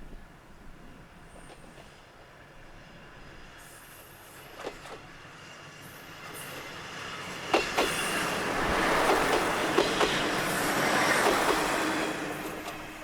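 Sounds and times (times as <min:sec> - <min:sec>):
railcar wheels rumbling on rails: 0:00.0 - 0:13.0
wheels clacking over rail joints: 0:06.6 - 0:13.0.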